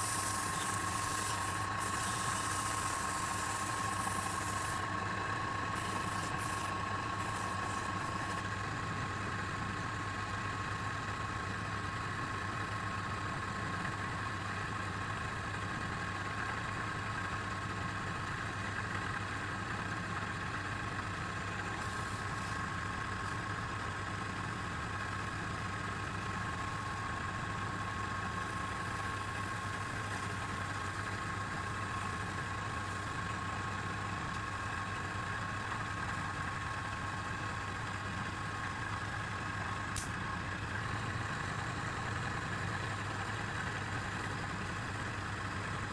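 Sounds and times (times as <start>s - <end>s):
wood lathe whining: 0.0s - 8.5s.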